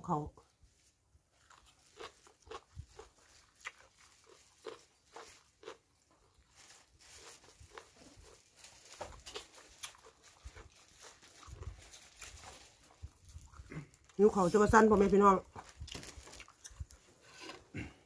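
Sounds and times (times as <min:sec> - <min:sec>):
wet chewing and lip-smacking: 0:01.4 - 0:06.5, 0:07.2 - 0:14.2, 0:15.4 - 0:17.7.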